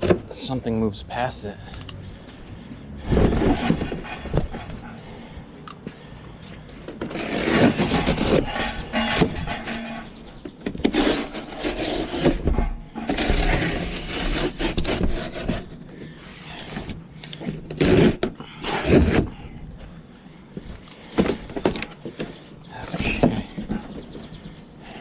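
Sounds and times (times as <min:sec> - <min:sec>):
tools scraping and rubbing: 0:02.2 - 0:05.2, 0:06.4 - 0:19.4.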